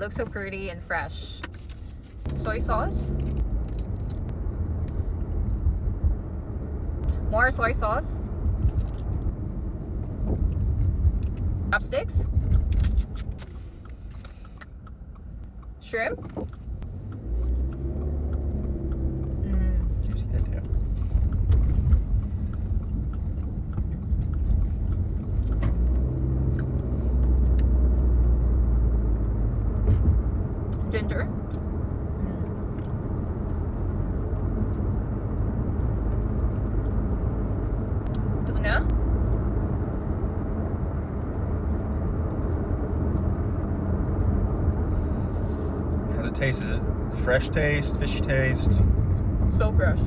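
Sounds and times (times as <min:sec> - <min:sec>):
low rumble: 0:00.0 - 0:50.0
chewing and mouth clicks: 0:03.1 - 0:07.3, 0:08.2 - 0:11.5, 0:12.2 - 0:29.8, 0:30.6 - 0:45.0.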